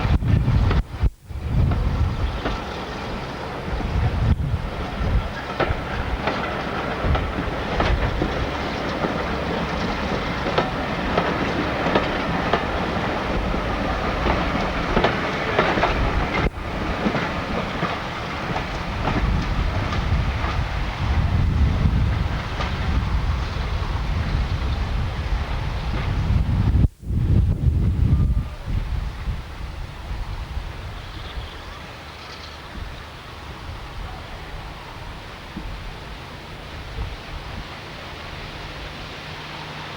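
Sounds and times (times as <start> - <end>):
train wheels clattering over joints: 0.0 - 26.4.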